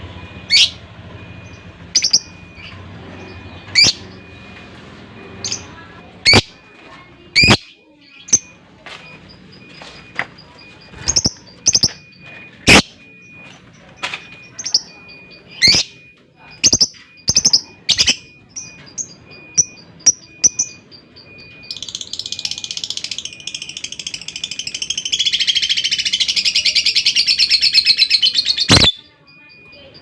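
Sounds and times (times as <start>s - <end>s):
lovebirds chirping: 0.3s - 13.6s
lovebird chattering trill: 5.4s - 6.6s, 7.3s - 8.6s.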